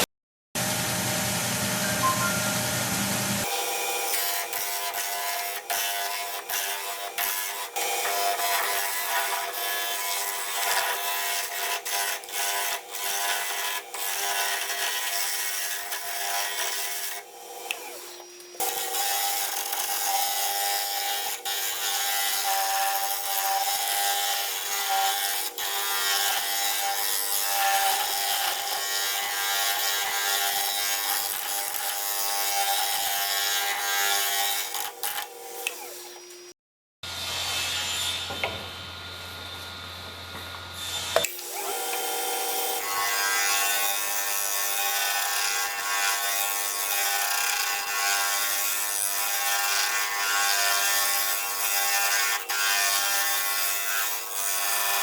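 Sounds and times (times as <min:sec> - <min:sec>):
wood lathe motor whine: 0:38.2 - 0:53.5.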